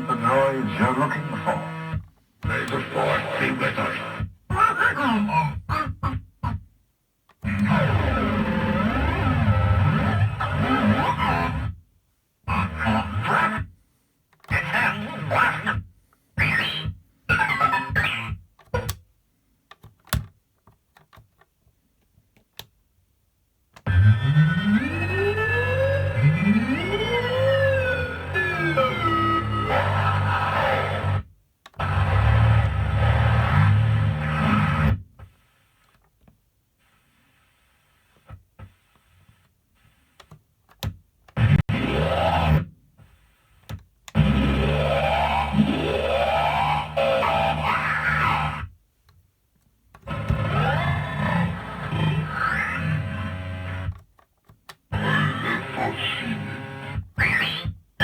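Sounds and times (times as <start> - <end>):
garbled electronic toy sample: 23.8 - 31.2, 44.1 - 48.7, 50.0 - 53.9, 54.9 - 57.8
rising electronic sweeps: 23.9 - 31.1.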